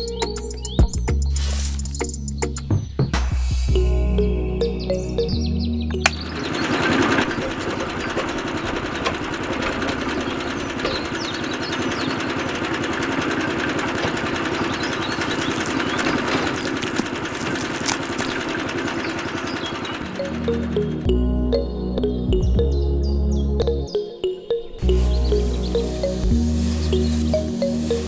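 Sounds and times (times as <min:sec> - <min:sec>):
music: 0:00.0 - 0:06.3, 0:20.1 - 0:28.0
gear chatter: 0:05.9 - 0:20.5.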